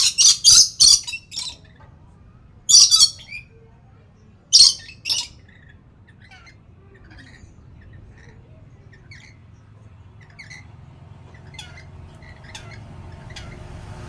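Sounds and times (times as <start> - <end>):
parrot chirping calls: 0.0 - 1.6, 2.7 - 3.4, 4.5 - 8.2, 11.3 - 13.7.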